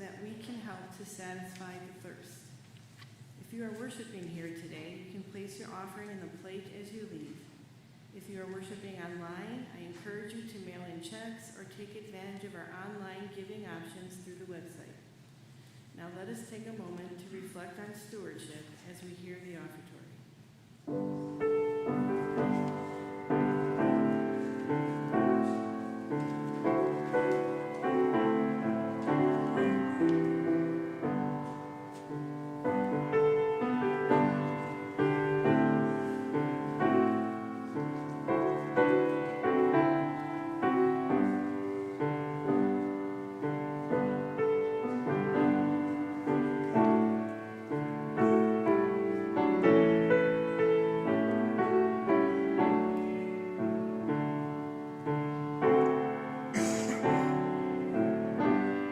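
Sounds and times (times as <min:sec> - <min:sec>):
gentle piano music: 0:20.8 - 0:58.9.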